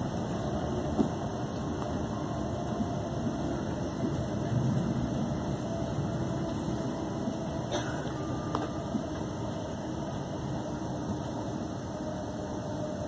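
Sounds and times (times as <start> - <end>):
faint steady whine: 0.0 - 13.0
train wheels rumbling on rails: 0.0 - 13.0.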